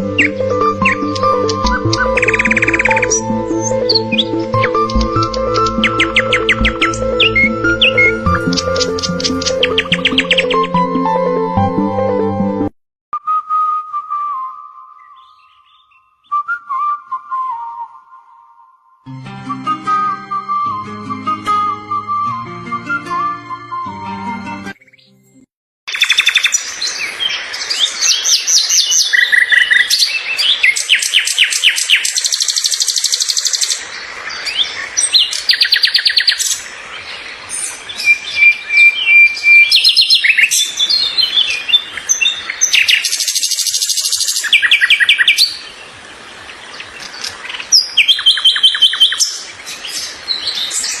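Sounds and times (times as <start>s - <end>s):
birds singing: 0.0s - 10.8s, 14.9s - 16.4s, 25.9s - 51.0s.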